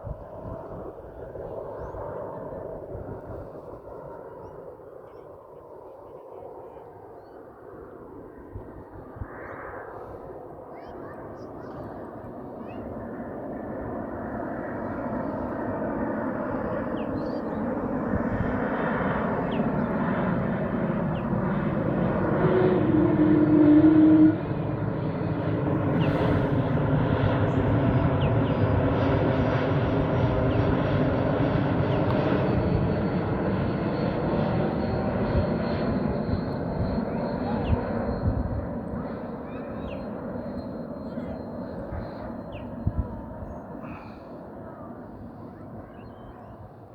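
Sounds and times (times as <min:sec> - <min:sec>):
jet engine roar overhead: 0:00.0 - 0:46.9.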